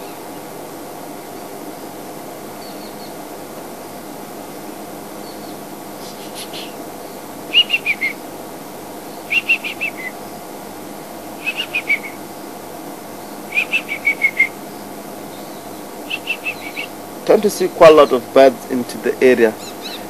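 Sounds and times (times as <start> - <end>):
bird whistling calls: 5.2 - 6.8, 7.5 - 8.2, 9.1 - 10.4, 11.4 - 12.2, 13.2 - 14.7, 15.3 - 17.0, 19.6 - 20.0.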